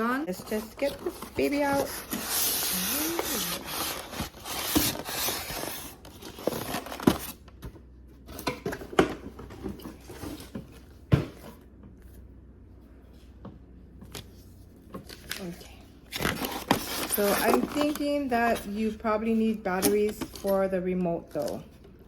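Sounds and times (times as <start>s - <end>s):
packaging rustling and tearing: 0.4s - 7.5s, 16.1s - 18.6s.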